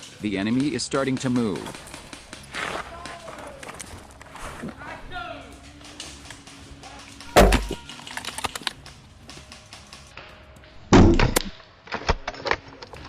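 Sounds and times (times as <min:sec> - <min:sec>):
airsoft gunfire: 0:07.3 - 0:07.9.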